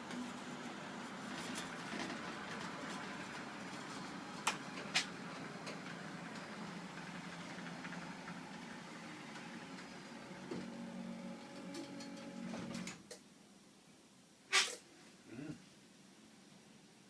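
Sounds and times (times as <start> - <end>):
electric garage door opener running: 0.0 - 13.1.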